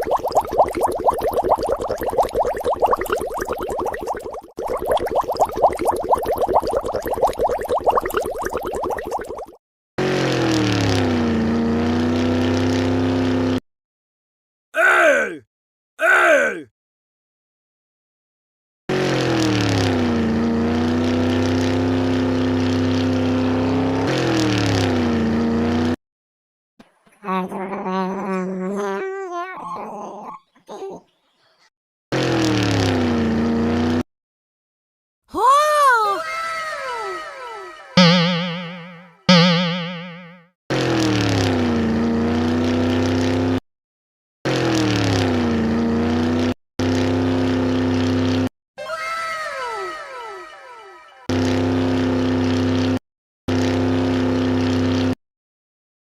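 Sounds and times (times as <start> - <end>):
engine sound effect humming: 10.0 - 13.6, 18.9 - 26.0, 32.1 - 34.0, 38.0 - 43.6, 44.5 - 48.5, 51.2 - 55.2
vehicle engine running: 18.9 - 26.0, 51.3 - 55.1.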